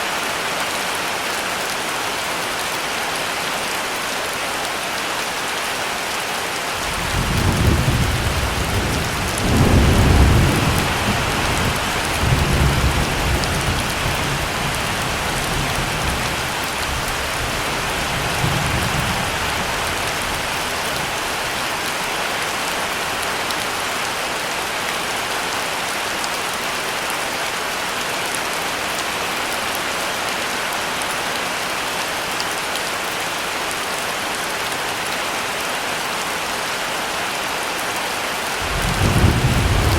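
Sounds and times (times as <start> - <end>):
heavy rain: 0.0 - 39.9
thunder rumble: 6.8 - 16.1, 38.6 - 39.9.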